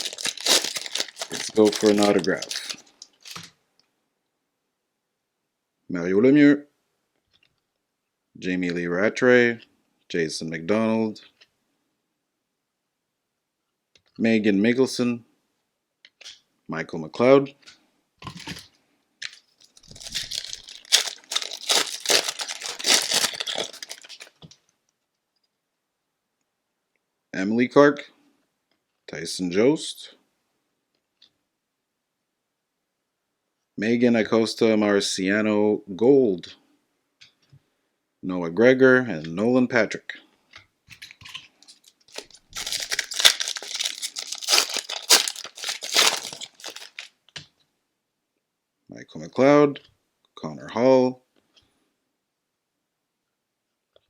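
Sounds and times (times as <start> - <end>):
foil wrapper tearing and crinkling: 0.0 - 3.5, 19.2 - 24.4, 41.7 - 47.1.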